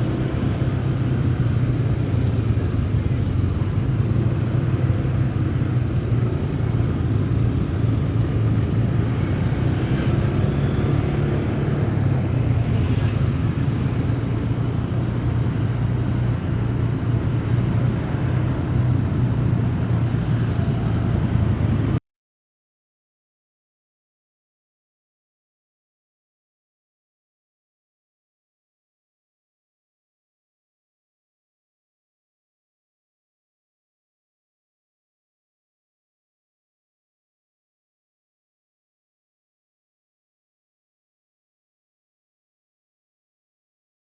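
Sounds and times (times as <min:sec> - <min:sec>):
motorcycle engine running: 0:00.0 - 0:22.0
road and traffic noise: 0:00.0 - 0:22.0.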